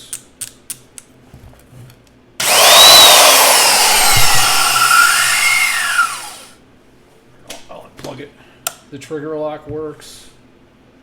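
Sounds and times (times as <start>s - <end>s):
bandsaw motor whining: 2.4s - 6.6s.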